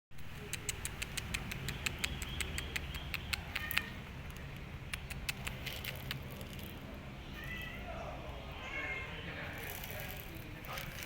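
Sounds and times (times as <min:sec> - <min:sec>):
cats crunching dry food: 0:03.3 - 0:07.6, 0:09.5 - 0:11.0
high cat call: 0:07.3 - 0:09.3.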